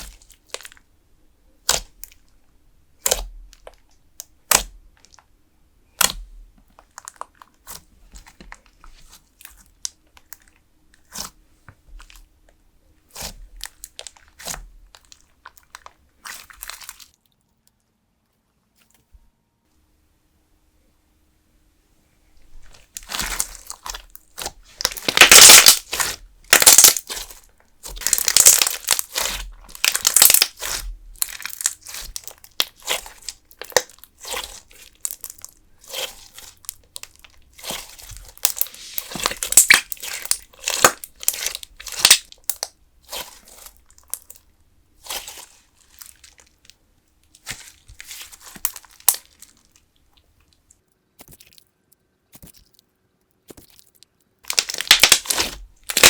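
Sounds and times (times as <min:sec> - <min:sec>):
slime squeezed and stretched: 0:01.6 - 0:02.2, 0:03.0 - 0:03.8, 0:04.4 - 0:05.2, 0:05.9 - 0:11.4, 0:13.1 - 0:17.2, 0:22.6 - 0:44.4, 0:45.0 - 0:46.6, 0:47.4 - 0:49.8, 0:54.5 - 0:56.0.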